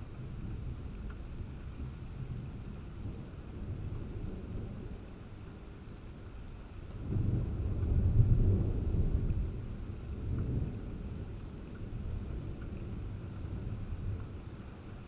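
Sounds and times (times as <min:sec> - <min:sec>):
thunder rumbling: 0:07.0 - 0:14.9.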